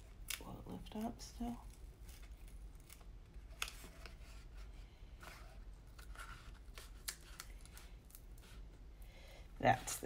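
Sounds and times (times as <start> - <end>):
paper rustling: 1.6 - 8.7.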